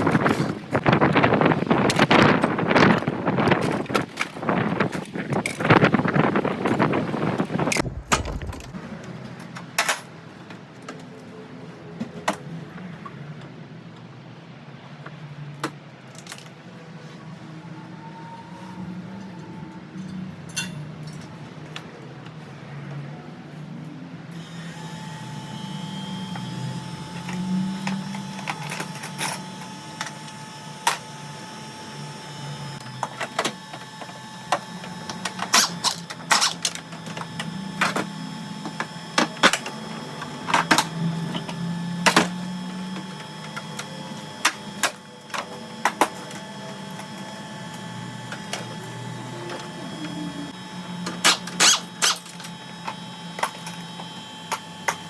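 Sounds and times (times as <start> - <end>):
steady low hum: 5.0 - 8.8.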